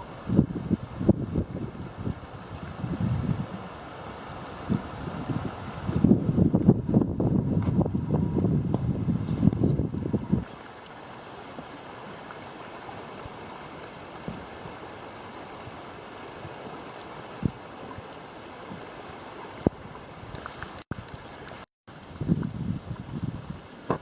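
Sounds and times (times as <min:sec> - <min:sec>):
river water rushing: 0:00.0 - 0:06.5, 0:10.4 - 0:22.1.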